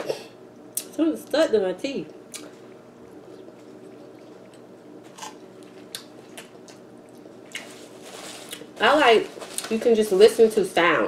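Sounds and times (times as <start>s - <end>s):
steady low hum: 0.0s - 11.0s
faint chewing with mouth clicks: 2.3s - 7.8s.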